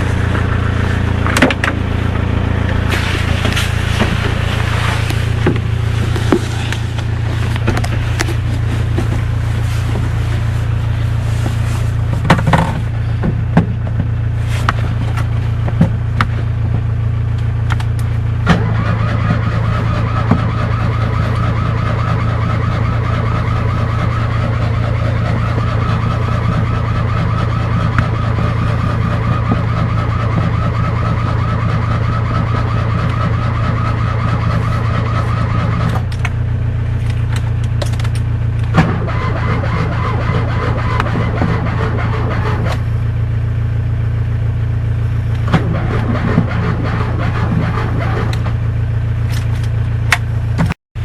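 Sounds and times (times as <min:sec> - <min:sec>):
small car engine running: 0:00.0 - 0:50.8
sharp engine clicks: 0:17.3 - 0:36.4, 0:37.0 - 0:42.9, 0:45.3 - 0:48.6.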